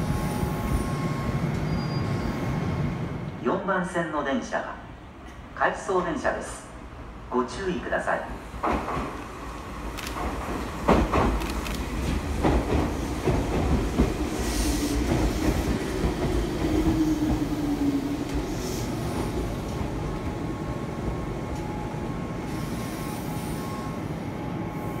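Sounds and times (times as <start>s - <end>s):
train rumble: 8.2s - 25.0s.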